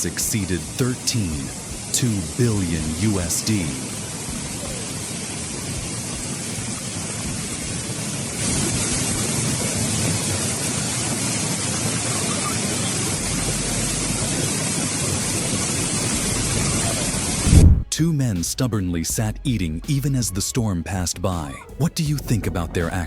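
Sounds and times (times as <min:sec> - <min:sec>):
heavy rain: 0:00.0 - 0:17.8
strong wind: 0:03.6 - 0:17.9.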